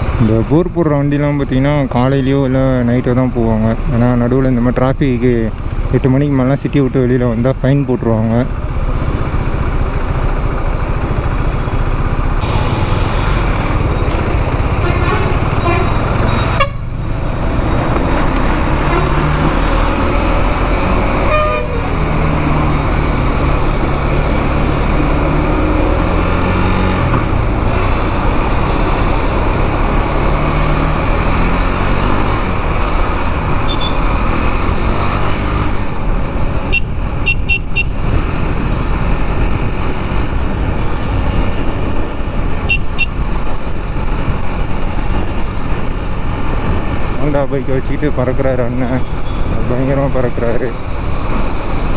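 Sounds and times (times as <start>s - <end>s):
wind and road noise: 0.0s - 51.9s
motorcycle engine running: 8.4s - 47.6s
vehicle horns tooting: 14.7s - 16.9s, 21.2s - 22.1s, 33.6s - 34.1s, 36.6s - 38.1s, 42.6s - 43.2s.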